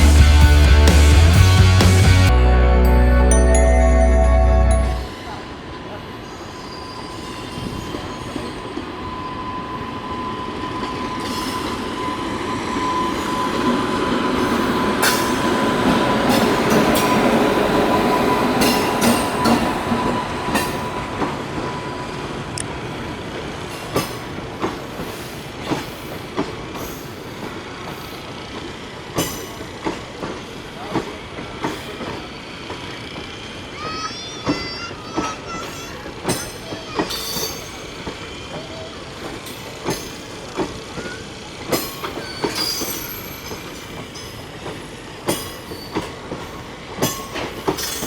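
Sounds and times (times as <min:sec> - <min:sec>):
music: 0:00.0 - 0:05.2
train wheels rumbling on rails: 0:05.3 - 0:48.0
thin steady wheel squeal: 0:06.2 - 0:15.4, 0:31.7 - 0:44.6
wheels clacking over rail joints: 0:22.5 - 0:48.0.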